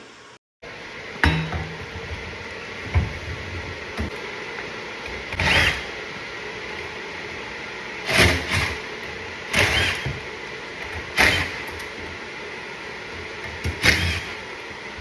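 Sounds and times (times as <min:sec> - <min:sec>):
power drill bursts: 0:05.4 - 0:05.9, 0:09.5 - 0:10.1, 0:11.1 - 0:11.7, 0:13.8 - 0:14.4.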